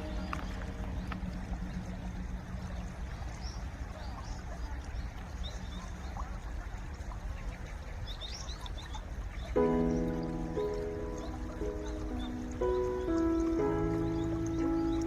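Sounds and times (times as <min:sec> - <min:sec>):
stream water rushing under ice: 0:00.0 - 0:15.0
high bird chirps: 0:08.0 - 0:15.0.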